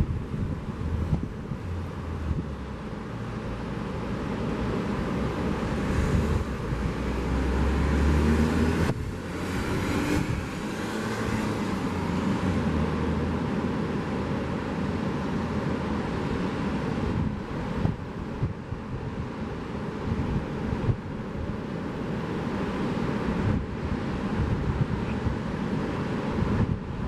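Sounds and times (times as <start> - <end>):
car passing: 0.0 - 18.0
sea waves washing: 0.0 - 27.0.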